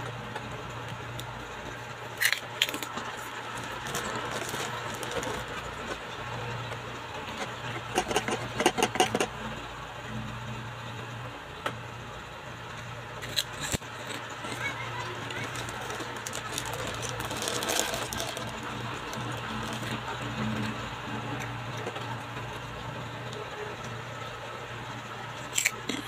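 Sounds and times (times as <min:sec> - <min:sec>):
crunchy snack chewing: 0:13.2 - 0:20.0, 0:25.5 - 0:26.0.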